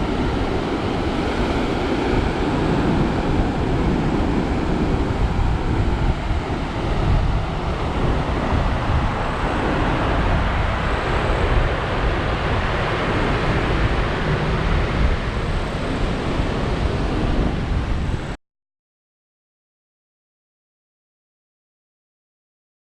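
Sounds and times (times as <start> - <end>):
wind buffeting microphone: 0.0 - 18.4.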